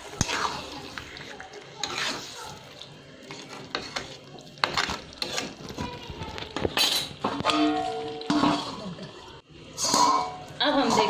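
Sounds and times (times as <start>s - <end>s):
metal spoon scraping a pot: 0.1s - 2.4s, 3.2s - 5.8s, 9.7s - 11.0s.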